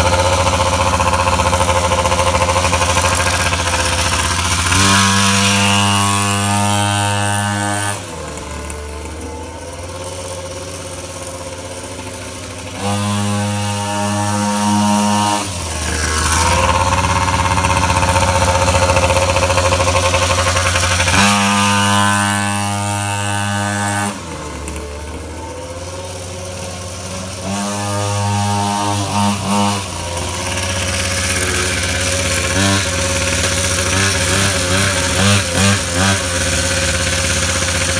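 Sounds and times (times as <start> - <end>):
dirt bike engine revving: 0.0 - 37.9.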